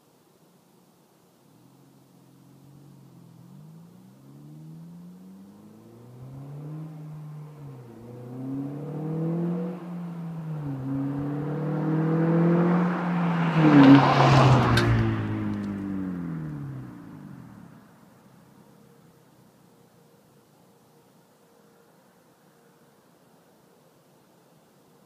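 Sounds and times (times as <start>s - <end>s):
car engine accelerating through gears: 2.3s - 17.9s.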